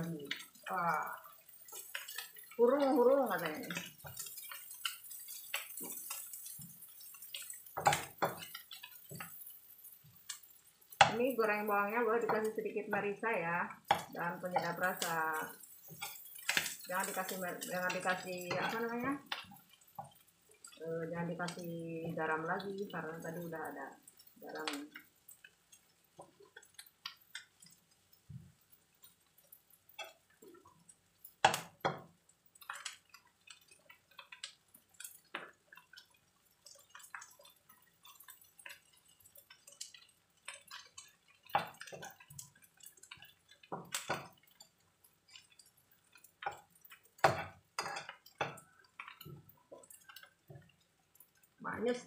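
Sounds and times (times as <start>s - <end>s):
food frying in oil: 0.0s - 52.0s
spatula scraping a pan: 3.3s - 11.1s, 13.9s - 20.8s, 36.6s - 50.7s.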